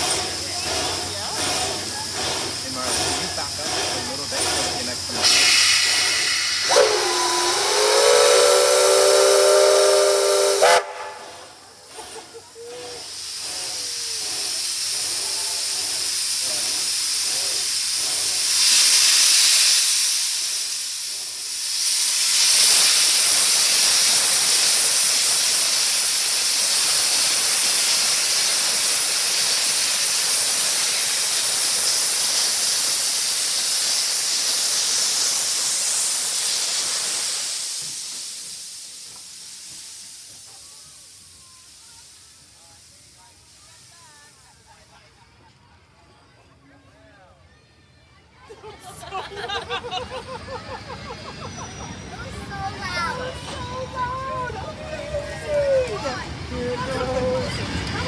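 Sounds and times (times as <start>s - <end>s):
steam hissing: 0.0s - 45.6s, 49.0s - 58.0s
steam locomotive whistle: 5.2s - 11.5s.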